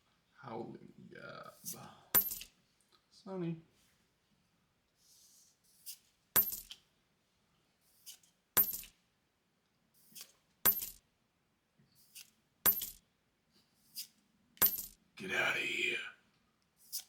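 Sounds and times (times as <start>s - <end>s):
sharp metallic clinks: 2.1s - 2.5s, 6.4s - 6.8s, 8.6s - 8.9s, 10.7s - 11.0s, 12.7s - 13.0s, 14.6s - 15.0s.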